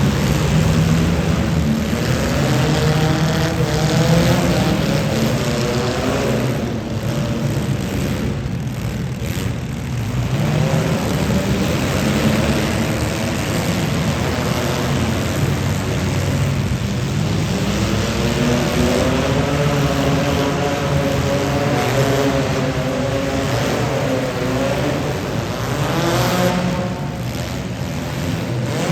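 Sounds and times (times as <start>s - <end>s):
car engines running and revving: 0.0s - 28.9s.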